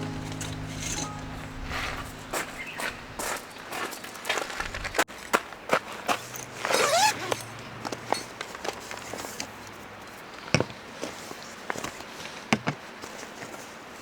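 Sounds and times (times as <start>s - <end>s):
faint steady hiss: 0.0s - 3.4s.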